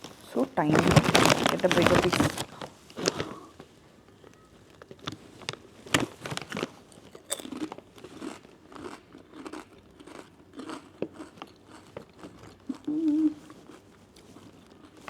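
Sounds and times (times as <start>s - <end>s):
potato chips crunching: 0.6s - 3.3s, 4.8s - 13.0s
soft chewing: 6.6s - 15.0s.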